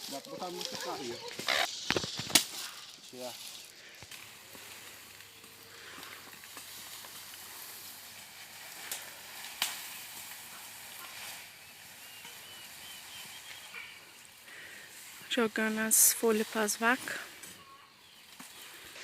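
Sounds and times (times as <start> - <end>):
faint outdoor hiss: 0.0 - 19.0.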